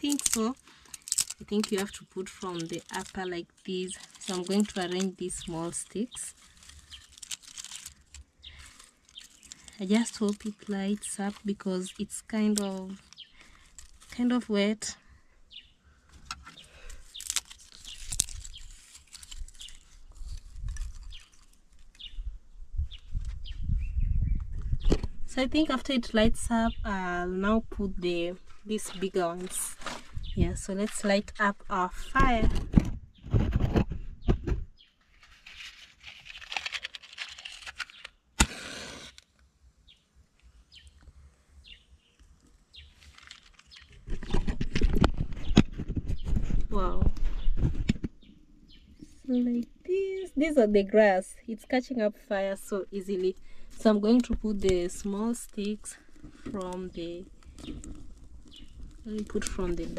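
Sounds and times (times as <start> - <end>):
sticks and dry grass rustling: 0.0 - 14.7, 16.0 - 22.3, 28.1 - 32.4, 35.0 - 39.3, 42.1 - 47.9, 52.3 - 59.9
birds chirping: 8.4 - 14.6
match striking and hissing: 38.4 - 39.3.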